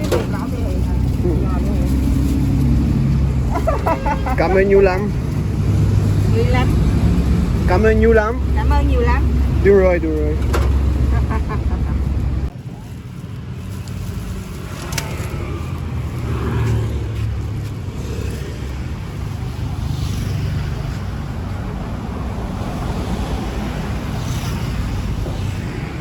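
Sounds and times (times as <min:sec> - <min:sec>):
motorbikes and cars passing: 0:00.0 - 0:26.0.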